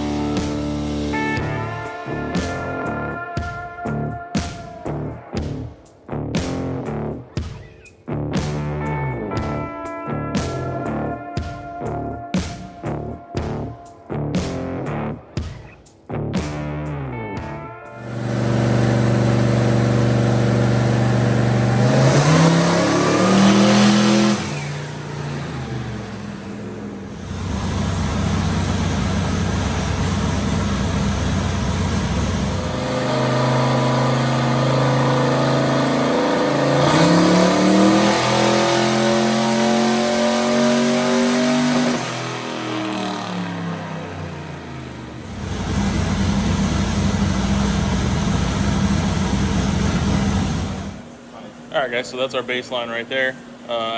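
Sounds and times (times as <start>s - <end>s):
truck engine revving on dyno: 18.0s - 51.1s.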